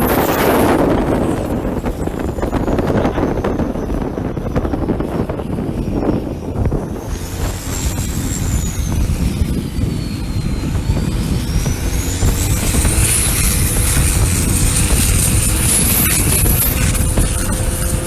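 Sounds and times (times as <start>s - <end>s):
diesel boat engine running: 0.0s - 18.0s
high turbo whine: 0.0s - 18.0s.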